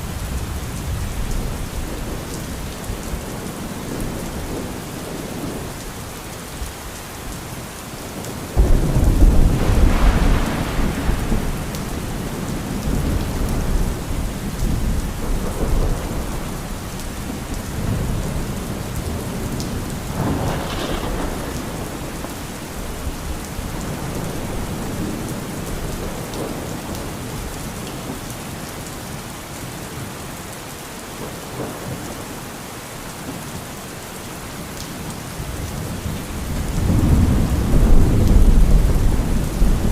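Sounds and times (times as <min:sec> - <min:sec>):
steady rain: 0:00.0 - 0:39.9
thunder rumbling: 0:08.5 - 0:27.4, 0:35.5 - 0:39.9.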